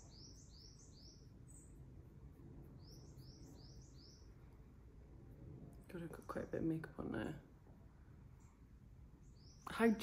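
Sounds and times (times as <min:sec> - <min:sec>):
bird chirping: 0:00.0 - 0:04.8, 0:08.2 - 0:10.0.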